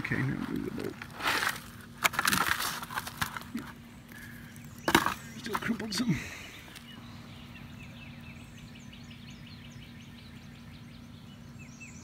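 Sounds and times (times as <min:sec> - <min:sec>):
songbird chirping: 0:03.5 - 0:12.0.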